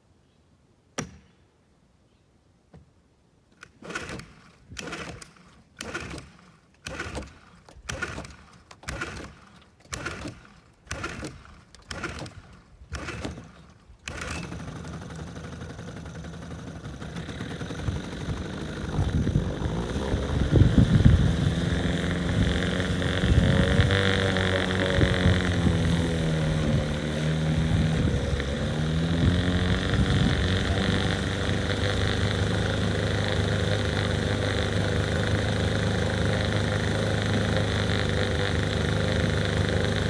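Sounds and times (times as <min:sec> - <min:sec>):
outboard motor pull-start: 0:03.6 - 0:40.0
outboard motor running: 0:14.1 - 0:40.0.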